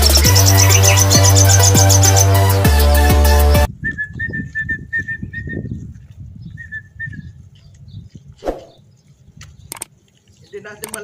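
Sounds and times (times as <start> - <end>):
bird chirping: 0.0 - 2.6
wind rumble on microphone: 3.7 - 9.8.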